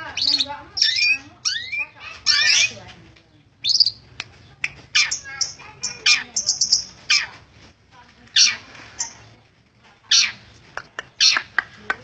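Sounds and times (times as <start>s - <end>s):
bird high chirps: 0.0s - 2.8s, 3.6s - 7.4s.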